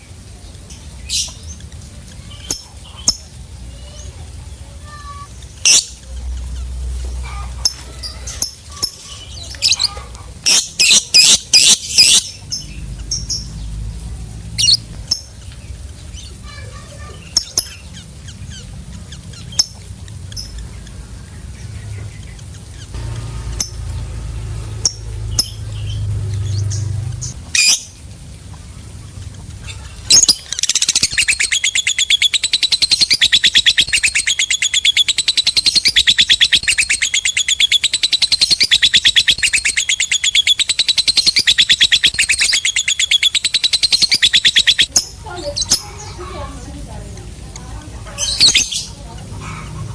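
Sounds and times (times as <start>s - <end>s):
bird chirping: 0.0s - 49.9s
low rumble: 18.2s - 30.1s.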